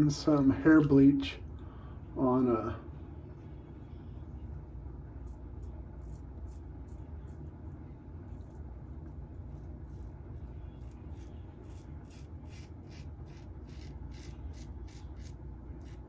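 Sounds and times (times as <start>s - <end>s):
steady low hum: 0.0s - 16.0s
razor scraping stubble: 5.2s - 7.1s, 9.4s - 16.0s.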